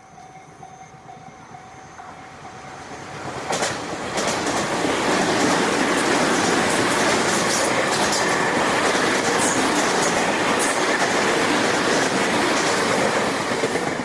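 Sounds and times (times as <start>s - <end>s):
train wheels rumbling on rail: 0.0s - 14.0s
wheels clicking over rail joints: 3.3s - 14.0s.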